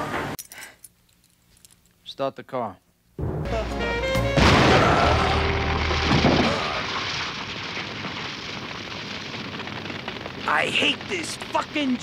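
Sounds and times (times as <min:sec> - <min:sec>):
film music: 0:03.2 - 0:06.6
loud explosion blast rumbling: 0:04.3 - 0:12.0.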